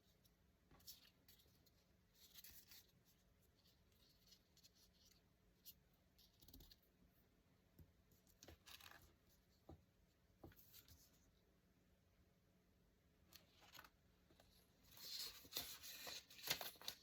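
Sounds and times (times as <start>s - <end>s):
paper rustling and scraping: 8.3s - 9.4s, 13.3s - 17.0s.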